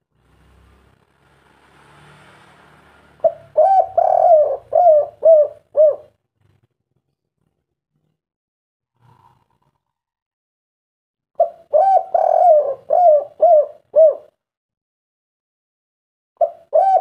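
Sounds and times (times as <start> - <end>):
dove cooing: 3.2 - 6.2, 11.4 - 14.4, 16.4 - 17.0.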